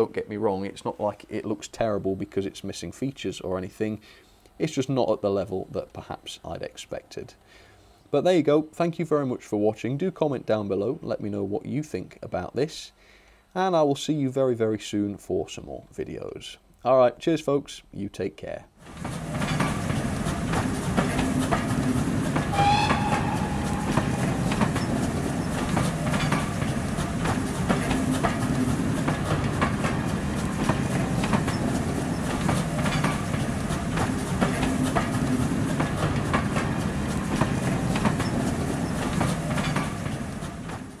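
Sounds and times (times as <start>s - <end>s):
train wheels clattering over rails: 18.8s - 41.0s
train whistle: 22.5s - 25.0s.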